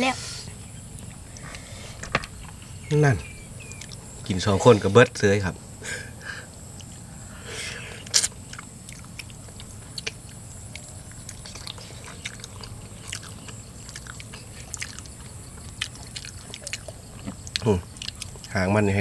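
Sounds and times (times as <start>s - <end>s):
people chewing food: 0.2s - 19.0s
wet mouth clicks and smacks: 8.1s - 18.5s.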